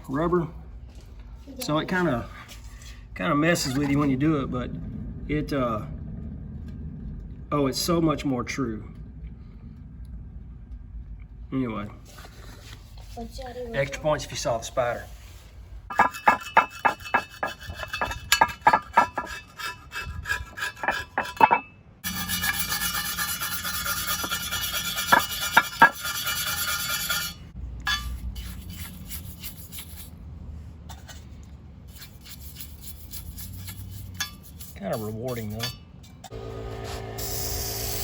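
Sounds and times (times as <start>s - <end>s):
brush scrubbing metal: 15.0s - 30.2s, 31.8s - 35.8s
scraping metal parts: 15.9s - 30.1s, 30.8s - 38.0s.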